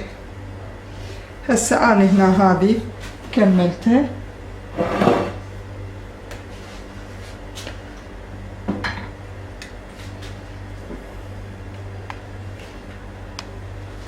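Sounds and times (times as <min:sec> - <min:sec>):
steady low hum: 0:00.0 - 0:14.0
dishes scraping: 0:04.7 - 0:05.4
dishes clinking and knocking: 0:04.8 - 0:05.4.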